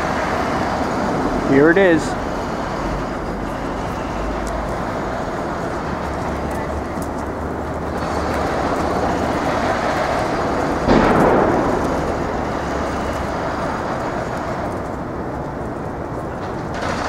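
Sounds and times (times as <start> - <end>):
city street traffic: 0.0 - 17.0
sudden rush of noise: 8.0 - 15.2.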